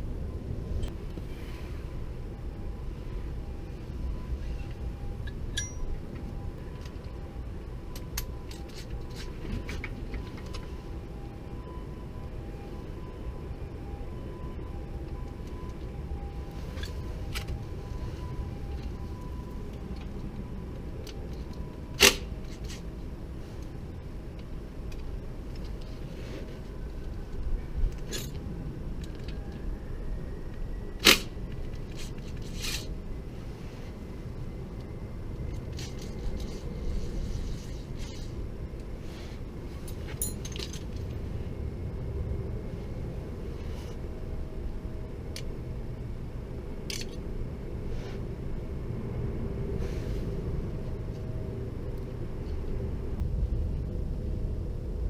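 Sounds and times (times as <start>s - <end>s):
steady low rumble: 0.0s - 55.0s
sharp metallic clinks: 5.2s - 6.0s.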